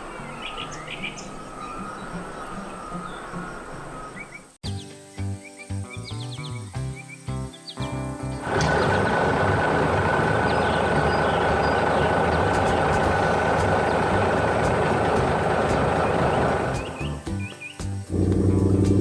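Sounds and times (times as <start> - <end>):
faint music: 0.0 - 19.0
thin mechanical whine: 8.4 - 17.1
heavy vehicle engine running: 8.4 - 17.2, 18.1 - 19.0.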